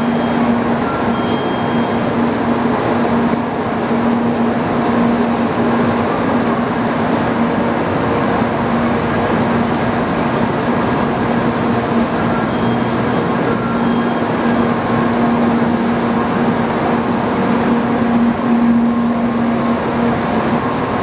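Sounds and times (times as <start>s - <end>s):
train equipment humming: 0.0s - 21.0s.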